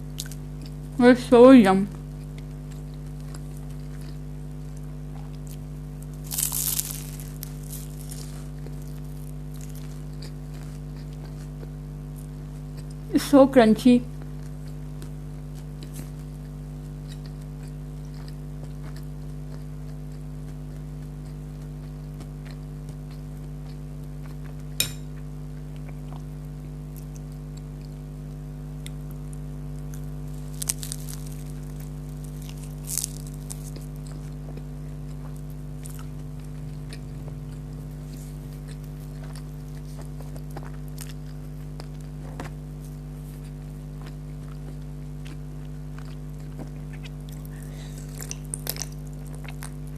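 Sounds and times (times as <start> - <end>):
chewing and crunching food: 0.0 - 1.0, 1.9 - 13.2, 14.1 - 49.9
low electrical hum: 0.0 - 49.9.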